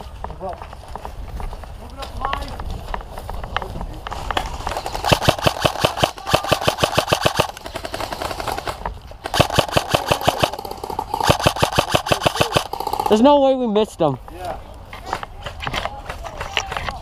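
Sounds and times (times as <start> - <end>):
airsoft rifle automatic fire: 4.6 - 13.2.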